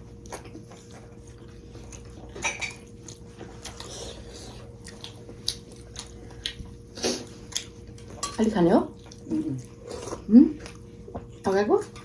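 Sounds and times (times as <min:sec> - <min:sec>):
faint steady hum: 0:00.0 - 0:12.0
wet chewing and biting: 0:00.2 - 0:08.2.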